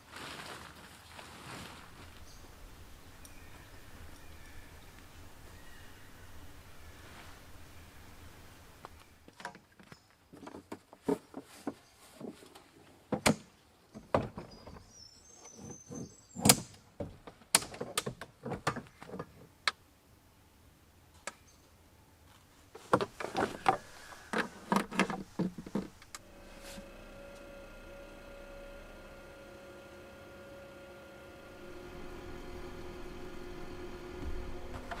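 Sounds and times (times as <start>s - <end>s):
camping gear clattering: 22.7s - 26.1s
steady low hum: 26.0s - 35.0s.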